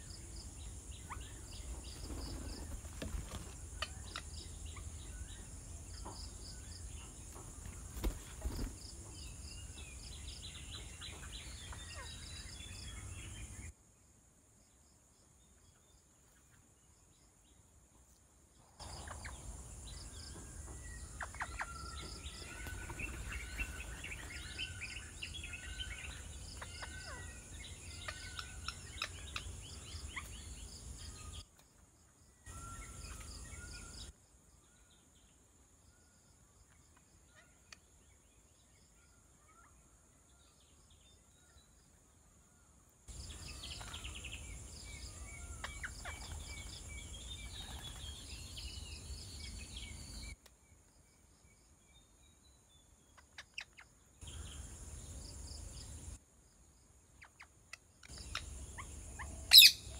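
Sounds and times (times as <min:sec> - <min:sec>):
birds chirping and whistling: 0:03.7 - 0:13.6, 0:18.8 - 0:31.4, 0:43.3 - 0:50.4, 0:58.1 - 0:59.9.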